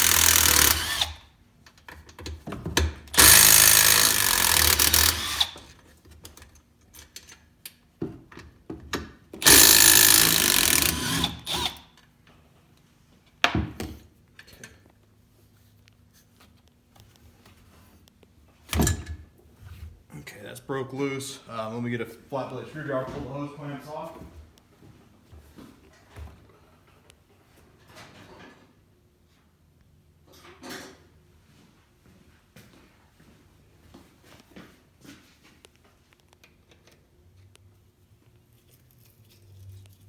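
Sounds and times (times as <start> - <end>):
power tool running: 0.0 - 1.2, 3.1 - 5.6, 9.4 - 11.8.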